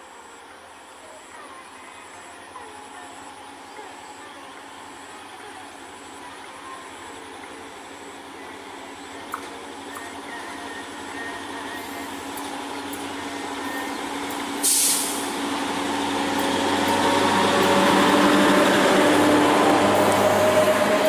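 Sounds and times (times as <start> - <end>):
train engine drone passing: 0.0 - 21.0
sharp hiss of air: 14.5 - 15.5.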